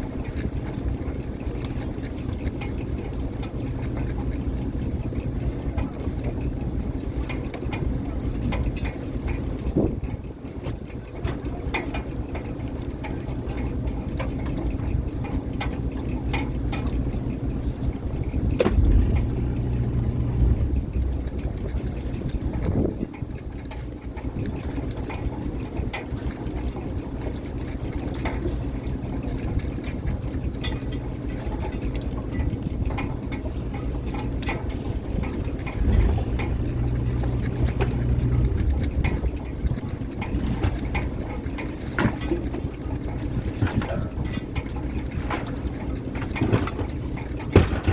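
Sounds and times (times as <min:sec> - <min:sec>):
boat engine running: 0:00.0 - 0:47.9
gear clicking and knocking: 0:00.0 - 0:47.9
water splashing: 0:17.0 - 0:47.8.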